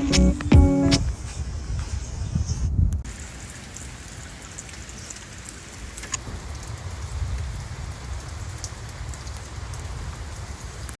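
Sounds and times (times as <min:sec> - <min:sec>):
rain falling: 0:03.0 - 0:11.0.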